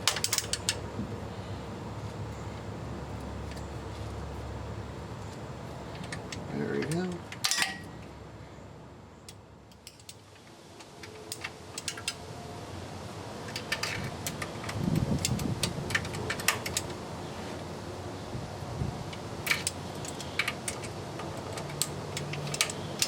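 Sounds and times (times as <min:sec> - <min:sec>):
wrench clicking on bolts: 0:00.0 - 0:00.8, 0:09.3 - 0:10.2, 0:11.0 - 0:12.2, 0:19.5 - 0:23.0.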